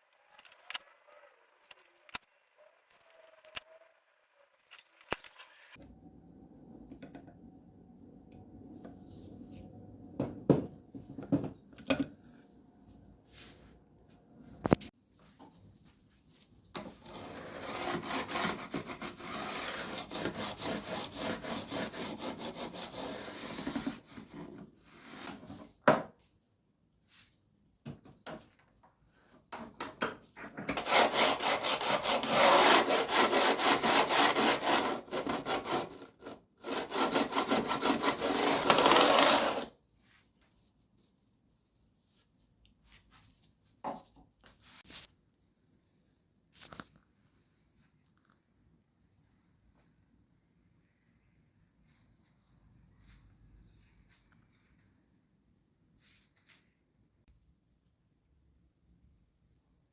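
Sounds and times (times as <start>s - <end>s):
sanding wood by hand: 17.3s - 24.0s, 30.8s - 36.0s, 36.6s - 39.7s.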